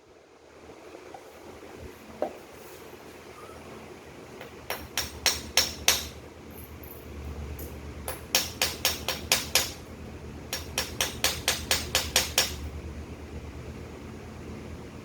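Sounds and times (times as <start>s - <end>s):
steady low hum: 0.0s - 15.0s
hammer strikes: 4.4s - 6.2s, 8.1s - 9.8s, 10.5s - 12.7s.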